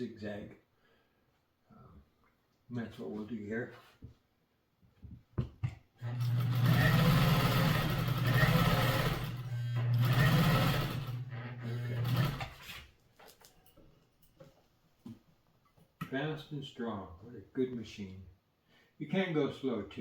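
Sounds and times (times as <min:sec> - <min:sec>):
sewing machine stitching: 0:06.0 - 0:12.8.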